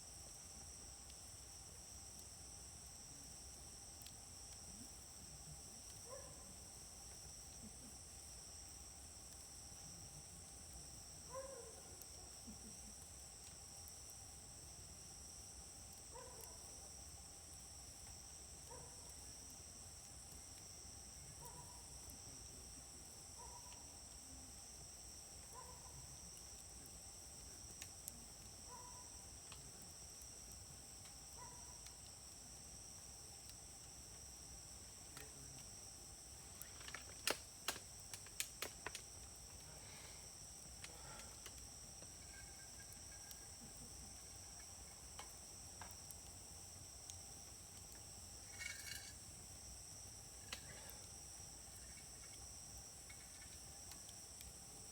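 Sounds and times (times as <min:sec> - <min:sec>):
insects trilling: 0:00.0 - 0:54.9
wood fire crackling: 0:00.0 - 0:54.9
sharp pops from fire: 0:25.0 - 0:32.4, 0:33.2 - 0:54.6.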